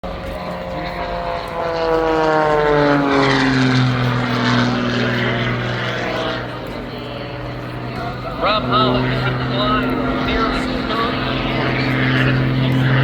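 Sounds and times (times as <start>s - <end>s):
propeller plane engine drone: 0.0s - 13.0s.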